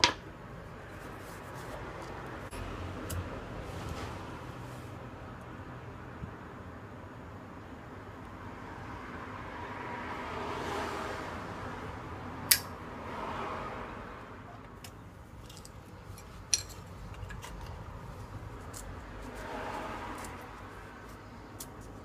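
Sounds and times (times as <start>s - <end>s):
small metal parts clinking: 15.4s - 17.8s.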